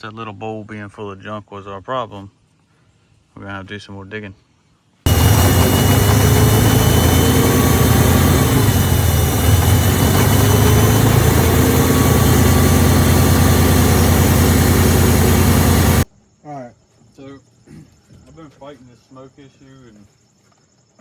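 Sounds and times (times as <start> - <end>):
bulldozer diesel engine running: 5.1 - 16.1.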